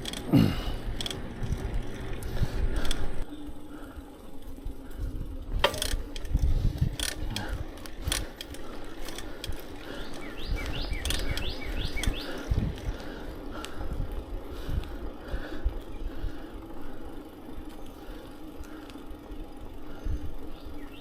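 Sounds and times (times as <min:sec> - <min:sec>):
bicycle freewheel ticking: 0:00.0 - 0:21.0
wind rumble on microphone: 0:04.5 - 0:08.3, 0:09.4 - 0:16.5
bird chirping: 0:09.8 - 0:12.6, 0:20.1 - 0:21.0.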